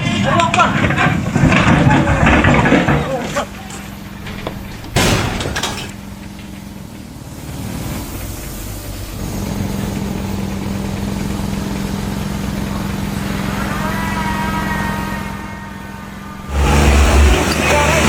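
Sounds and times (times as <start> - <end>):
vehicle engine running: 0.0 - 18.0
loud burst of sound: 13.0 - 18.0.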